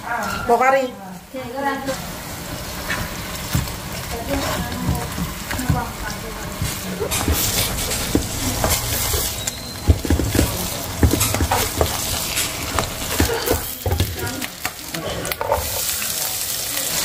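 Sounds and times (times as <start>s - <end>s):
egg sizzling in hot oil: 0.0s - 17.0s
spatula scraping pan: 2.6s - 14.5s, 15.2s - 16.0s.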